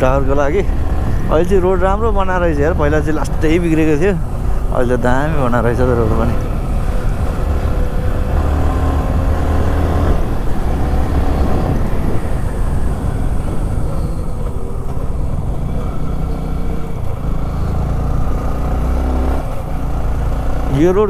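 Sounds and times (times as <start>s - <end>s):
wind noise on microphone: 0.0s - 5.6s, 6.3s - 17.2s.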